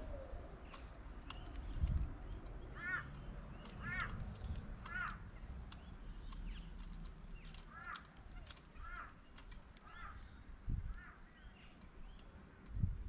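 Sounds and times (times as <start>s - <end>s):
bird cawing: 2.6s - 5.4s, 7.4s - 11.4s.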